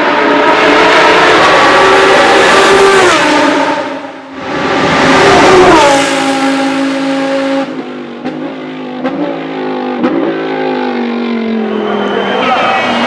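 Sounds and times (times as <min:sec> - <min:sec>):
car engine revving high: 0:00.0 - 0:13.0.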